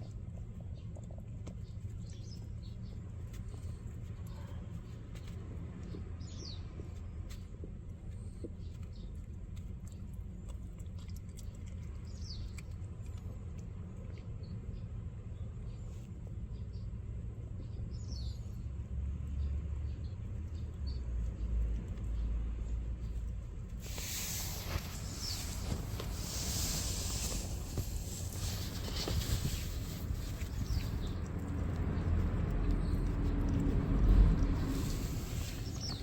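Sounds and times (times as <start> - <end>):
low rumble: 19.2 - 36.0.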